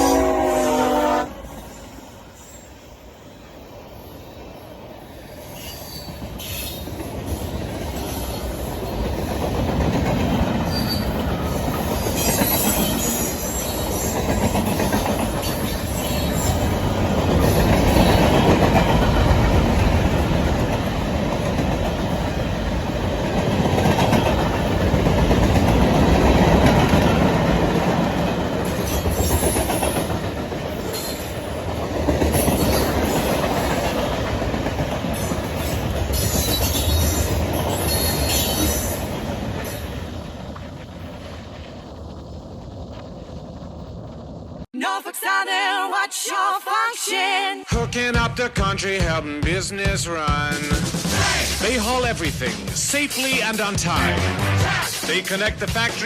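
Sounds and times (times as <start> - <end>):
train rumbling on rails: 0.0 - 44.7, 47.7 - 56.0.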